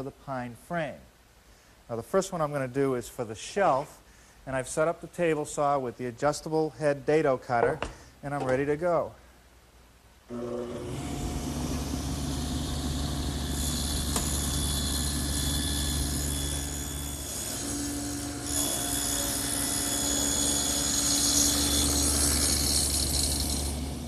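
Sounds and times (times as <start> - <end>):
table saw cutting wood: 10.3 - 24.0.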